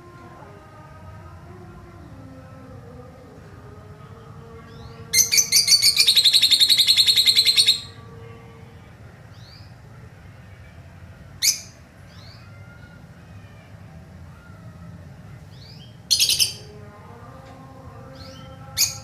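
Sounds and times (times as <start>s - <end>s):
lovebird chattering: 5.2s - 7.9s.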